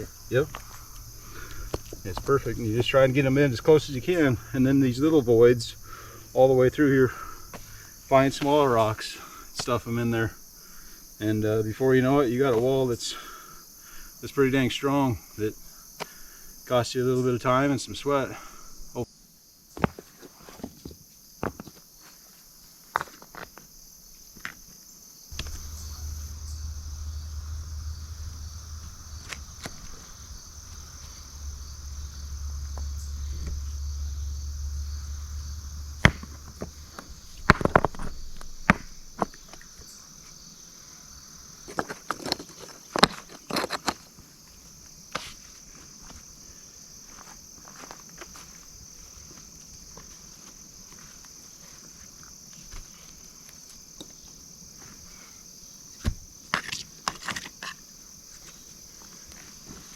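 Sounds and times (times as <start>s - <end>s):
low rumble: 0.0s - 6.8s, 25.3s - 39.5s
crickets chirring: 0.0s - 59.9s
stones knocking and clacking: 0.4s - 2.4s, 36.0s - 39.6s, 41.7s - 44.1s.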